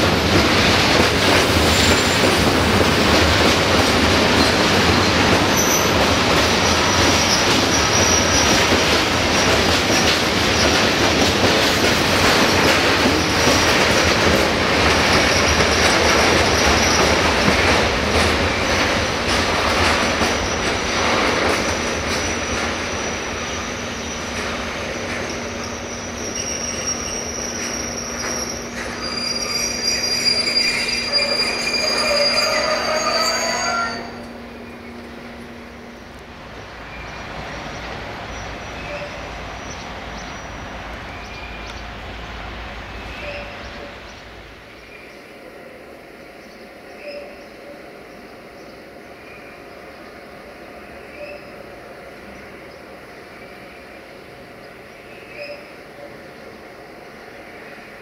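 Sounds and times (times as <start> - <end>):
freight train rolling and rattling: 0.0 - 58.0
brake and wheel squeal: 4.4 - 6.0, 25.7 - 34.3.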